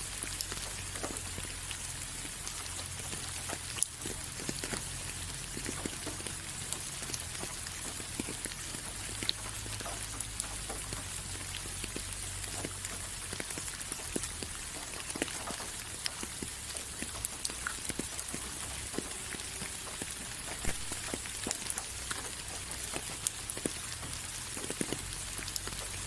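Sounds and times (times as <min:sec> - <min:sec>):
rain hissing: 0:00.0 - 0:26.0
raindrops pattering on surface: 0:00.0 - 0:26.0.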